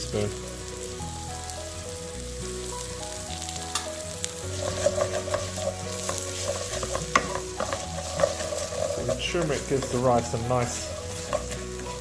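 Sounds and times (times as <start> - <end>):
rice sizzling in hot oil: 0.0 - 12.0
utensil scraping a pot: 4.4 - 12.0.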